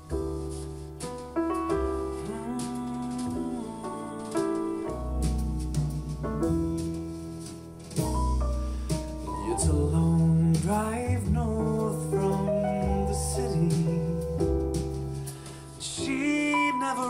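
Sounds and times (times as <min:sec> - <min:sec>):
pop song through speaker: 0:02.1 - 0:05.4, 0:09.3 - 0:14.5, 0:15.8 - 0:17.0.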